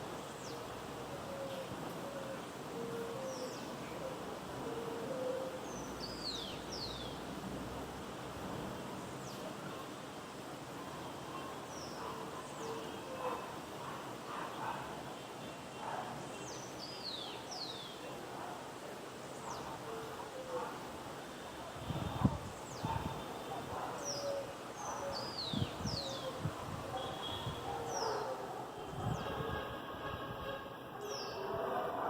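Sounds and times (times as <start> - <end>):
distant traffic hum: 0.0 - 32.0
birds whistling calls: 22.7 - 29.6, 31.0 - 31.6.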